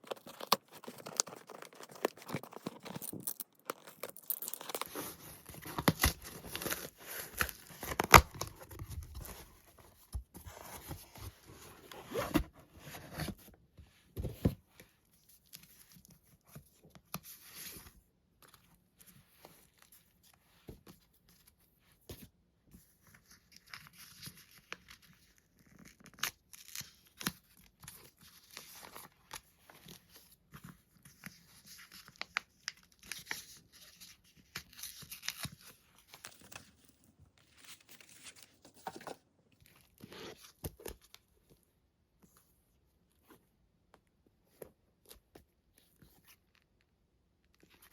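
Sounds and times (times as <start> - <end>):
packaging tearing and crinkling: 0.0 - 8.8.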